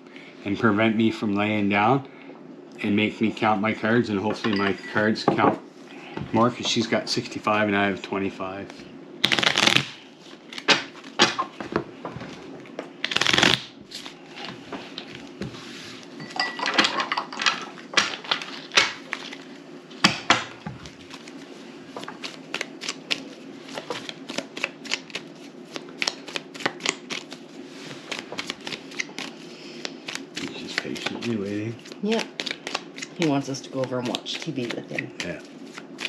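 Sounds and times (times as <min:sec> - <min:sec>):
playing cards shuffling: 0:08.6 - 0:16.1, 0:20.7 - 0:36.0.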